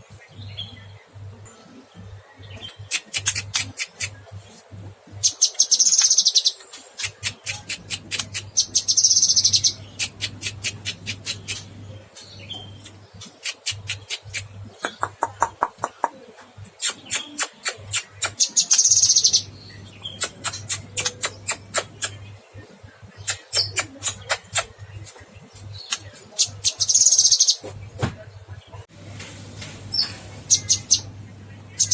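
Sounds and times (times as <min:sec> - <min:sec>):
songbird chirping: 0:00.0 - 0:31.9.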